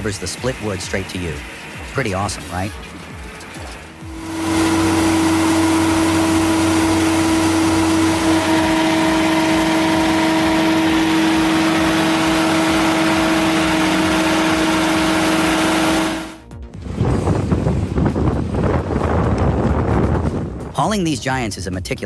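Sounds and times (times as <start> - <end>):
engine humming under load: 0.0 - 16.4
machine noise: 0.0 - 16.4.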